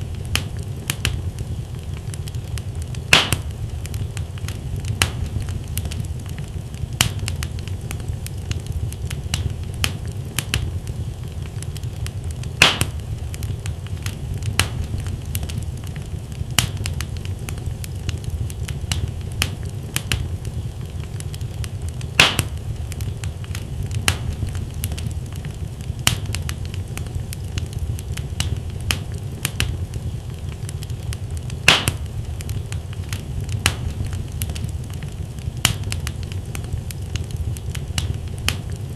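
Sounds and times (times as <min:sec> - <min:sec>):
fire flames rumbling: 0:00.0 - 0:38.9
logs crackling: 0:00.0 - 0:38.9
loud fire pops: 0:00.0 - 0:38.9.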